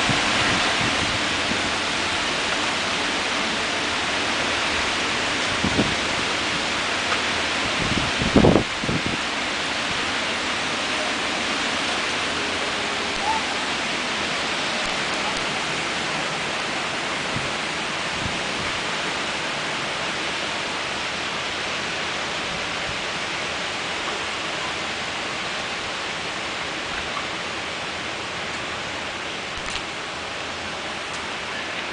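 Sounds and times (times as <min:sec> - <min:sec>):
strong wind roaring: 0:00.0 - 0:31.9.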